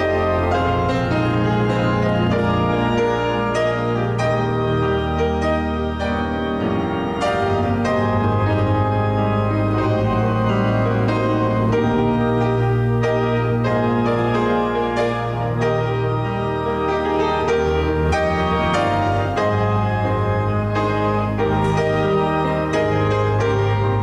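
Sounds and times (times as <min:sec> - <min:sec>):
slow keyboard music: 0:00.0 - 0:24.0.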